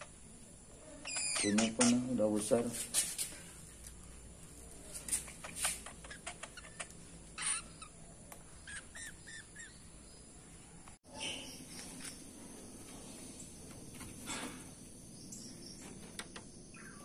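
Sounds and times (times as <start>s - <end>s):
pet bird chirping: 0.8s - 2.4s, 5.1s - 12.3s, 15.1s - 17.0s.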